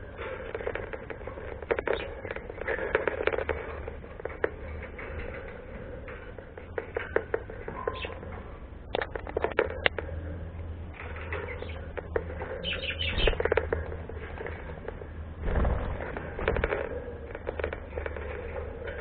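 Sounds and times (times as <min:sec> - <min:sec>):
faint bird chirp: 0:07.7 - 0:08.3, 0:11.2 - 0:13.5
bird wings flapping: 0:13.1 - 0:19.0.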